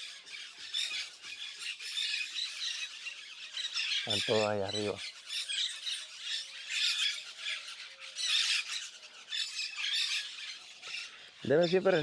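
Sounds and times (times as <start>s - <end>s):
parakeets squawking and chattering: 0.0s - 12.0s.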